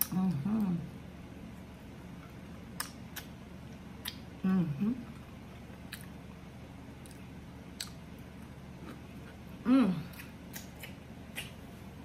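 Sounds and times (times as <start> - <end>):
person chewing cucumber: 2.2 - 4.4, 5.0 - 6.3, 6.9 - 11.8
person humming mm: 9.6 - 10.2.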